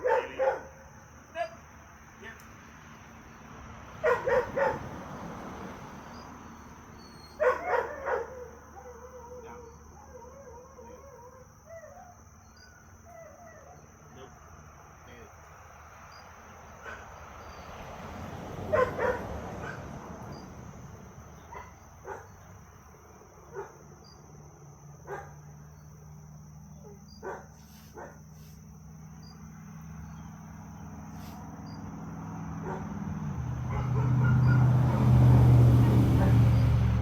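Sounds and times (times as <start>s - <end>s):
dog barking: 0.0s - 1.6s, 4.0s - 4.9s, 7.3s - 10.0s, 16.8s - 17.2s, 18.7s - 19.9s, 21.4s - 22.4s, 23.5s - 23.8s, 25.0s - 25.5s, 26.7s - 28.2s, 32.6s - 33.0s, 33.6s - 36.8s
crickets chirring: 0.0s - 37.0s
vehicle engine: 0.7s - 8.8s, 13.9s - 37.0s.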